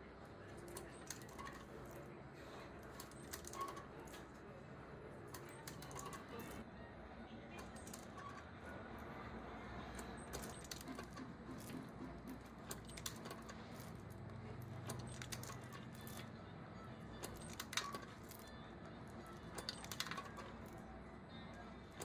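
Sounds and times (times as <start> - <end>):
small metal parts clinking: 0.4 - 2.1, 2.8 - 4.4, 5.2 - 6.6, 7.6 - 8.5, 9.9 - 16.4, 17.1 - 20.9.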